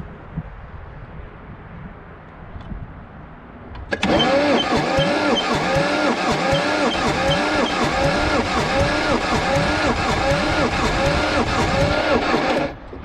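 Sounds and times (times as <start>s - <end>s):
electric starter cranking diesel engine: 3.9s - 12.9s.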